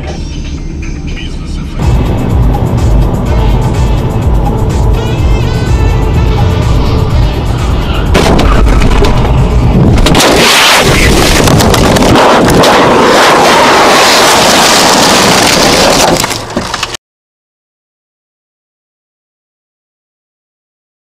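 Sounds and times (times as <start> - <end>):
vehicle collision crash: 8.1 - 17.0.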